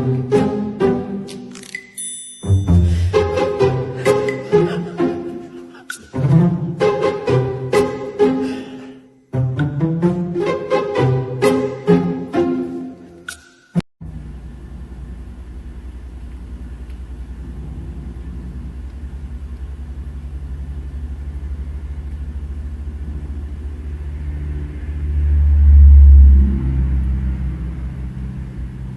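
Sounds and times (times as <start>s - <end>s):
cat purring: 16.8s - 21.6s.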